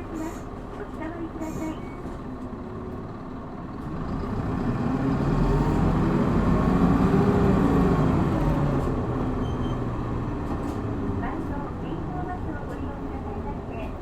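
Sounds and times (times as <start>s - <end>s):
bus diesel engine accelerating: 0.0s - 14.0s.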